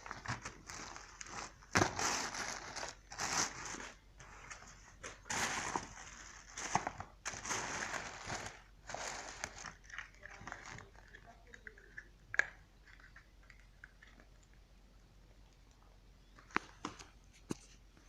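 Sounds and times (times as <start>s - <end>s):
rustling and crinkling handling: 0.0s - 14.3s, 15.8s - 18.0s.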